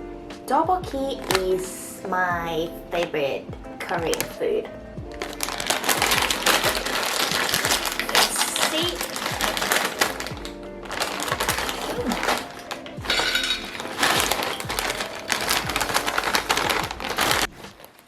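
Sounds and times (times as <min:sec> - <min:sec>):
plastic snack packet crinkling: 0:05.2 - 0:18.0.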